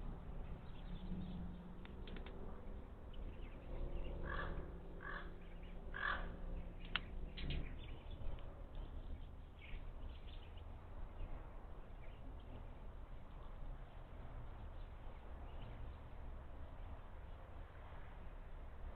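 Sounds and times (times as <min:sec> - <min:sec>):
harsh bird calls: 0:03.1 - 0:12.8.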